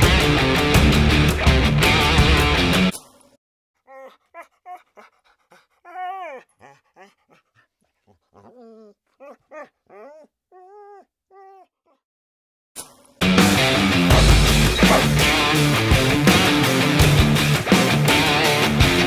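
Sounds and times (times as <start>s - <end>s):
rock music with electric guitar: 0.0s - 2.9s, 13.2s - 19.0s
dog whimpering and yipping: 3.9s - 11.7s.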